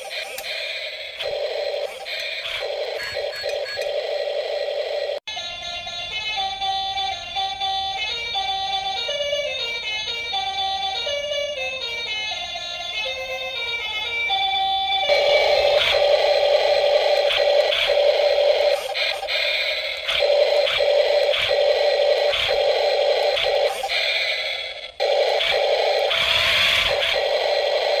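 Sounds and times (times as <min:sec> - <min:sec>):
toy beeping tune: 0:05.6 - 0:16.2
buzzy electronic engine drone: 0:15.0 - 0:28.0.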